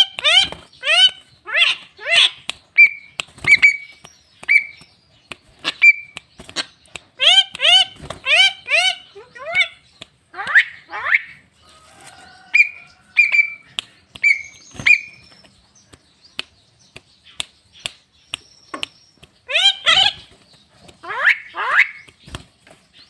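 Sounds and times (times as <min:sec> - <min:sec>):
bird squawky calls: 0:00.0 - 0:04.9, 0:05.5 - 0:11.5, 0:12.5 - 0:15.3, 0:19.4 - 0:20.3, 0:21.0 - 0:22.3
sharp clicks: 0:02.4 - 0:08.3, 0:13.6 - 0:19.5
bird whistled notes: 0:14.2 - 0:15.4.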